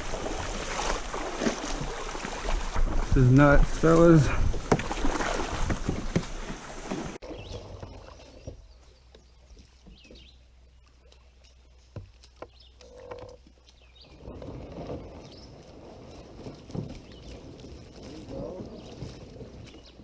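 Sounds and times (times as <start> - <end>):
paddle knocking on hull: 0.0 - 8.6
paddle splashing water: 0.0 - 20.0.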